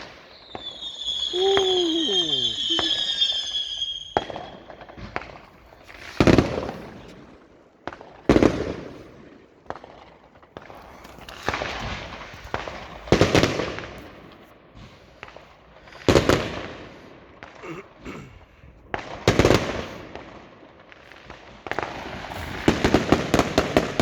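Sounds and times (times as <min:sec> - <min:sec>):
fireworks bangs: 0:00.0 - 0:04.6.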